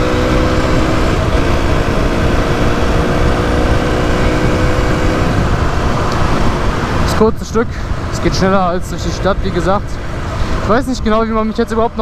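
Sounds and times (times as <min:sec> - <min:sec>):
wind rumble on microphone: 0:00.0 - 0:08.4
motorcycle engine cruising: 0:00.0 - 0:12.0.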